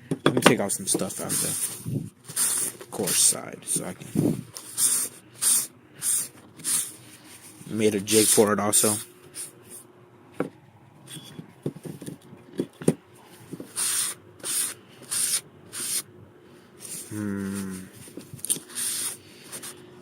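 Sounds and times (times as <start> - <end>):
person humming: 17.0 - 18.1.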